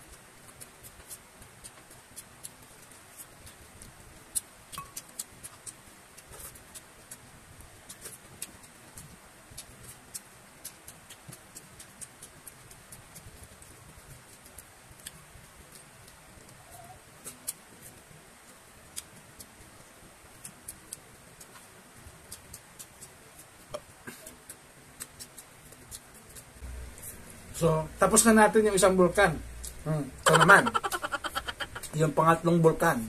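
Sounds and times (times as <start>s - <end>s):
chewing and mouth clicks: 0.5s - 7.2s, 7.8s - 13.7s, 22.3s - 26.5s.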